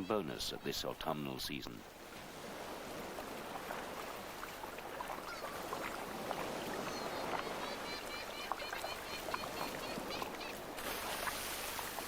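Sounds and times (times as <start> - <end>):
surf washing over rocks: 9.8 - 12.0.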